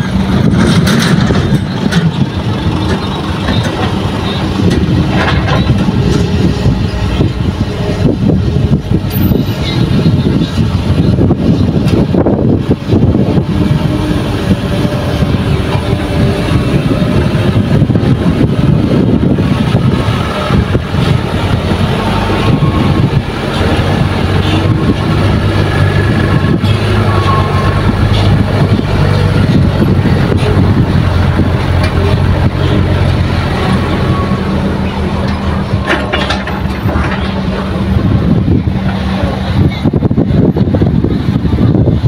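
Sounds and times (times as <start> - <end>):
heavy diesel engines running: 0.0 - 42.0.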